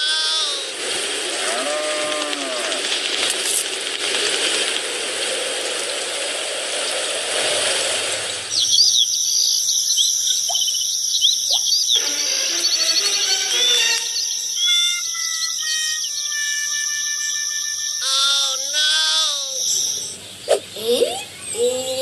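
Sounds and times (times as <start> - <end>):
steady rushing noise: 2.6 - 8.6
birds chirping: 8.3 - 22.0
insect trill: 8.6 - 20.2.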